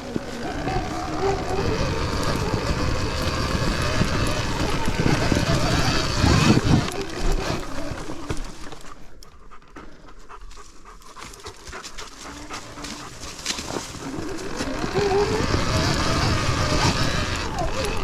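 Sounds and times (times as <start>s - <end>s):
dog panting: 0.0s - 15.2s.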